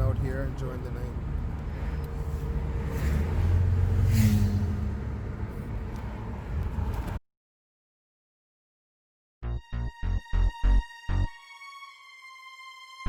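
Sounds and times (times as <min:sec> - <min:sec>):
car engine and road noise: 0:00.0 - 0:07.2.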